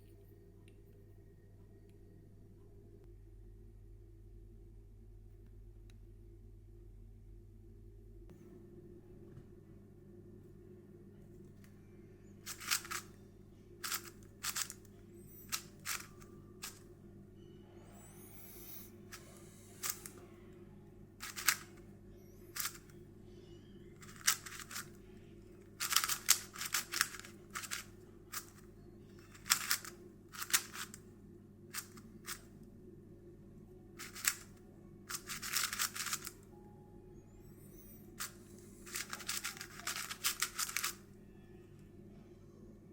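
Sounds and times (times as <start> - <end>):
puzzle cube turning clicks: 12.4 - 13.1, 13.8 - 16.8, 18.3 - 20.2, 21.2 - 21.8, 22.5 - 23.0, 24.0 - 25.0, 25.7 - 31.0, 31.7 - 32.5, 34.0 - 36.4, 38.2 - 41.0.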